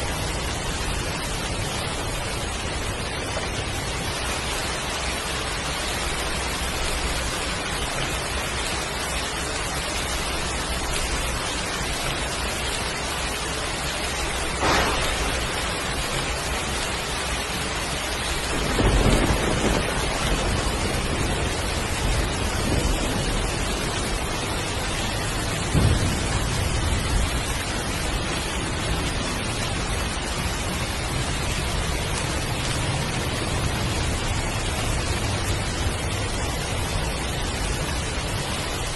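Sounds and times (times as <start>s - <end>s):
heavy rain: 0.0s - 38.9s
rumbling thunderclaps: 14.1s - 38.9s
thunder crack: 14.5s - 16.7s, 18.4s - 24.5s, 25.3s - 29.2s.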